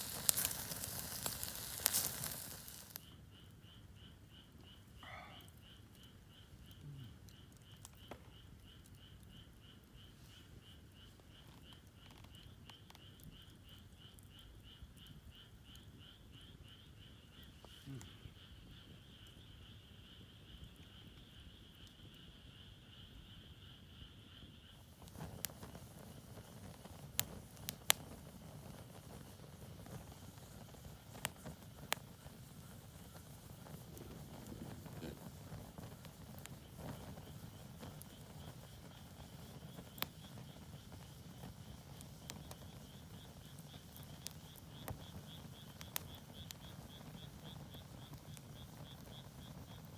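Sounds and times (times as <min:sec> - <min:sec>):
rustling: 0:00.0 - 0:03.0
insect chirping: 0:00.0 - 0:06.5, 0:07.4 - 0:49.9.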